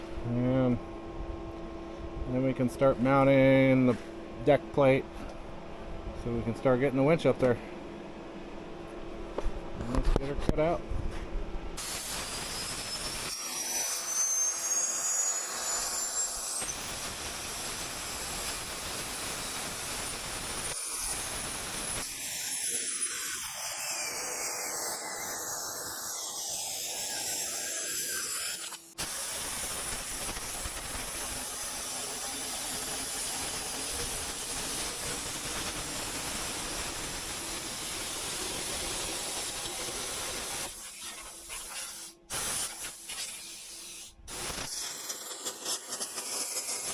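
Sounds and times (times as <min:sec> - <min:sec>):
cutting torch hissing: 0:11.8 - 0:46.9.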